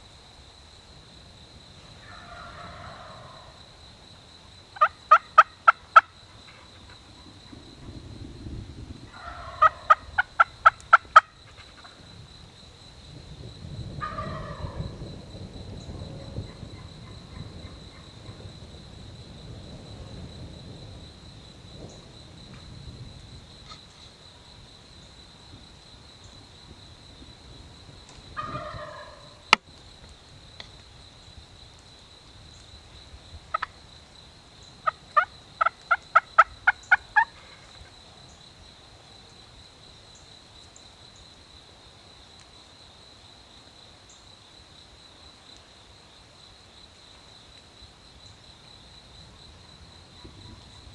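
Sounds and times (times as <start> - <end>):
wild turkeys calling: 2.0 - 3.6, 4.8 - 7.0, 9.1 - 12.0, 14.0 - 14.8, 28.4 - 29.6, 33.5 - 33.8, 34.8 - 37.8.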